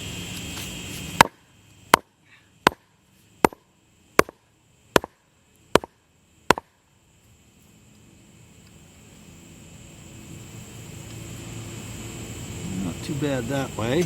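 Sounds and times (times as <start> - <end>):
sledgehammer striking a block: 2.7 - 3.6, 4.2 - 4.4, 5.0 - 5.2, 5.8 - 6.7.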